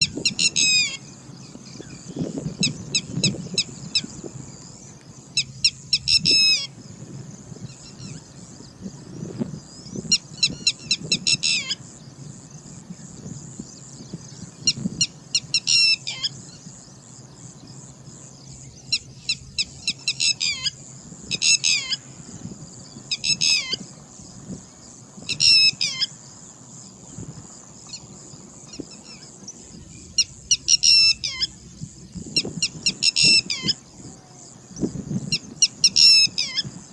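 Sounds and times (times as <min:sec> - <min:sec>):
lapwing alarm call: 0:00.0 - 0:06.8, 0:09.8 - 0:12.0, 0:13.9 - 0:16.8, 0:18.8 - 0:24.1, 0:25.3 - 0:26.3, 0:28.7 - 0:36.9.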